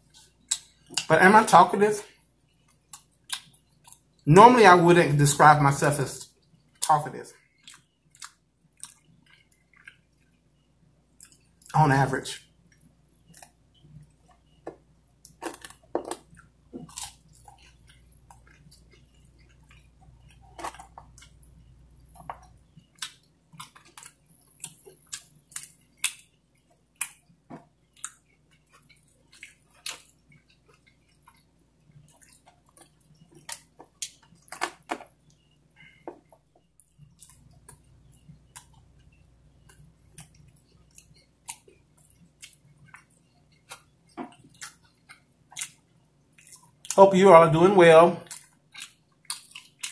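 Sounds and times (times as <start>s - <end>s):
person chewing wetly: 0.0s - 1.1s, 2.1s - 4.3s, 6.3s - 11.8s, 12.4s - 47.0s, 48.2s - 49.9s
lip smacks and clicks: 48.2s - 49.9s.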